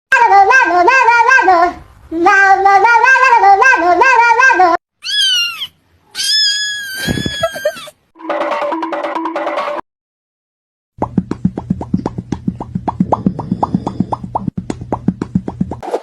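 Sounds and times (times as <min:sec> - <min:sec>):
cat meowing: 0:05.0 - 0:07.9.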